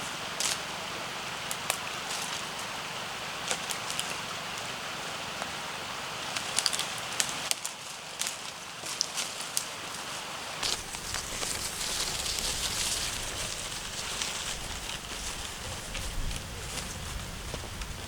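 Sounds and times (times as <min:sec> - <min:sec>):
fire hiss: 0:10.6 - 0:18.0
wood fire crackling and popping: 0:10.6 - 0:18.0.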